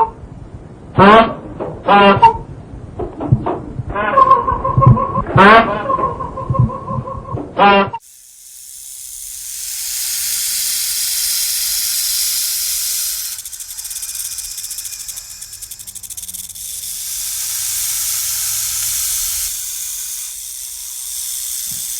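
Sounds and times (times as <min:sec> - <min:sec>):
animal hissing: 0:08.0 - 0:21.9.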